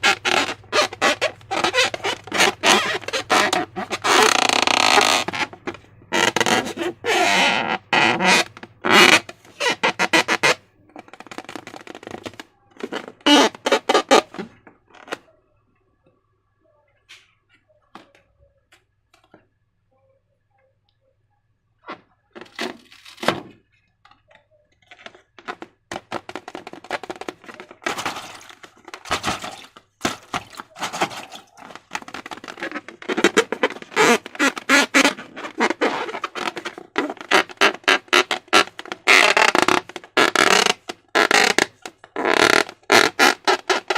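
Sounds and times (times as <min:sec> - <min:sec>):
slime squelching and crackling: 0:25.0 - 0:41.6.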